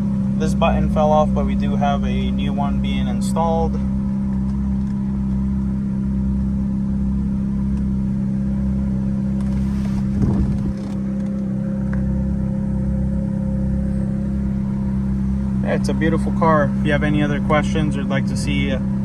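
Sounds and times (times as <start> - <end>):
car engine idling: 0.0 - 19.0
short rustle: 9.4 - 12.0.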